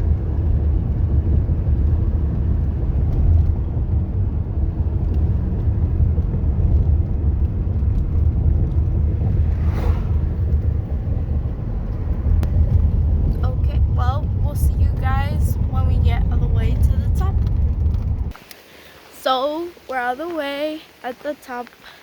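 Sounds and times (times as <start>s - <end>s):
car road and engine rumble: 0.0s - 22.0s
brief whoosh: 9.1s - 12.4s.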